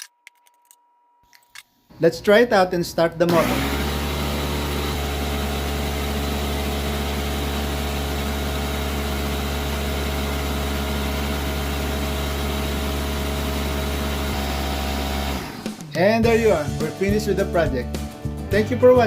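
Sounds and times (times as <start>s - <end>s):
air compressor running: 3.3s - 15.9s.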